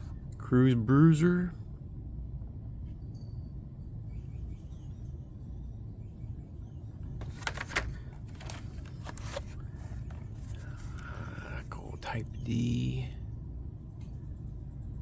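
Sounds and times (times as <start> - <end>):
steady low hum: 0.0 - 15.0
plastic and card rustling: 7.2 - 11.3.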